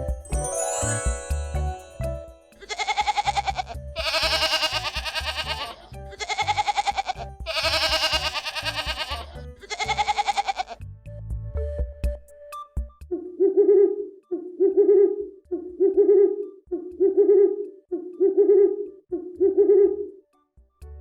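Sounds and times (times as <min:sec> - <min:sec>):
background music with low beat: 0:00.0 - 0:13.4
goat bleating: 0:02.6 - 0:10.8.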